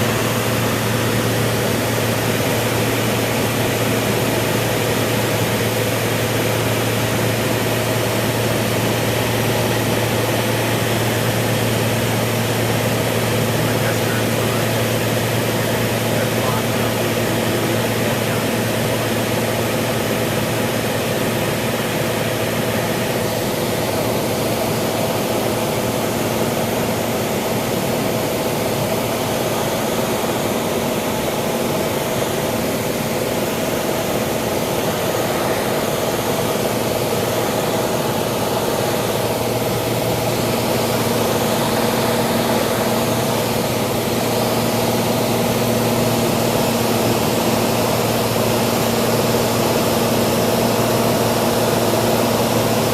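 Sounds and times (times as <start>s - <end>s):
propeller plane engine droning: 0.0s - 52.9s.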